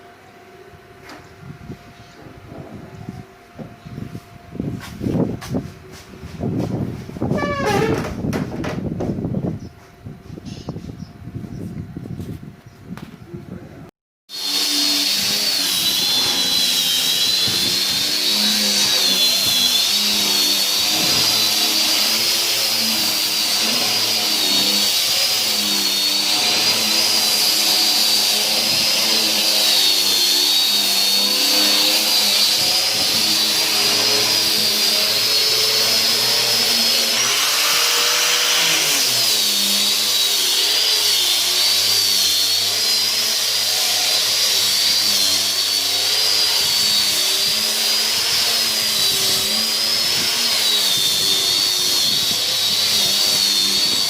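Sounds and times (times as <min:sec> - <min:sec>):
power tool cutting wood: 0:07.2 - 0:08.8, 0:14.3 - 0:54.0.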